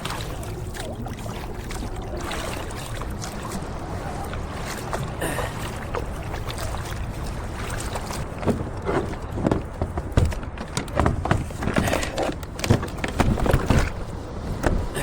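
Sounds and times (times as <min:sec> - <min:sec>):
steady low rumble: 0:00.0 - 0:11.6
water splashing and lapping: 0:00.0 - 0:15.0.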